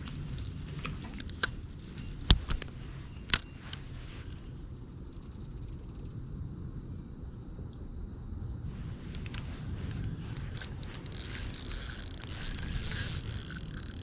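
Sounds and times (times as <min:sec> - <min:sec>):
fishing gear clicks and knocks: 0:10.5 - 0:14.0.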